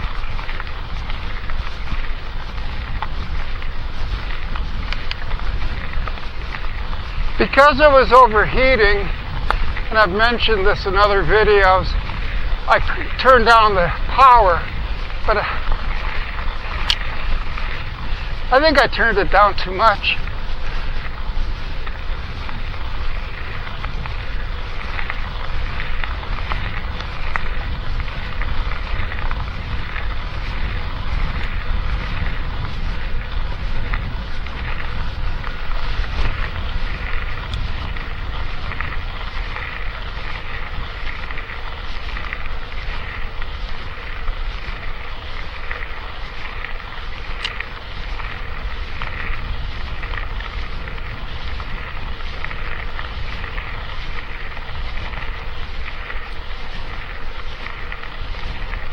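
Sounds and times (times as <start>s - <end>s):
bike rumbling: 0.0s - 58.9s
tyres crackling on rough trail: 0.0s - 58.9s
wind buffeting microphone: 0.0s - 58.9s.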